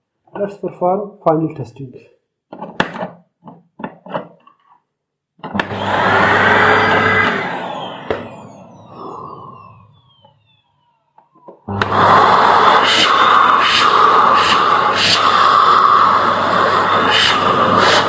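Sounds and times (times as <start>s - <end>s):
vacuum cleaner motor whining: 5.4s - 18.0s.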